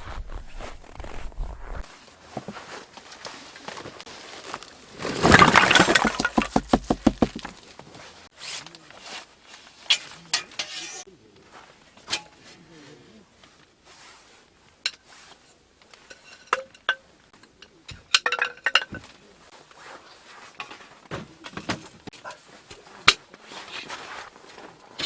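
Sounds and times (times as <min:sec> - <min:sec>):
faint rustling: 0:00.0 - 0:05.5
small hard objects clinking: 0:04.6 - 0:07.8, 0:16.0 - 0:19.1.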